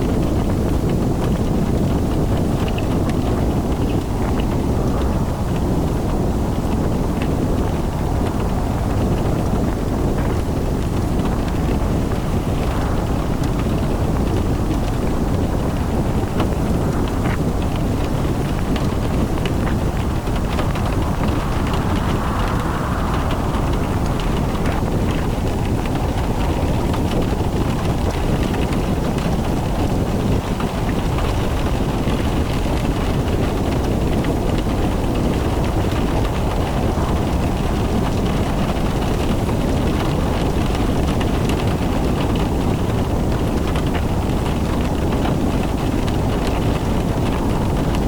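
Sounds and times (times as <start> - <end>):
rain: 0.0 - 48.0
wind noise: 0.0 - 48.0
car engine rumble: 1.5 - 30.2
tyres on wet road: 3.1 - 43.0.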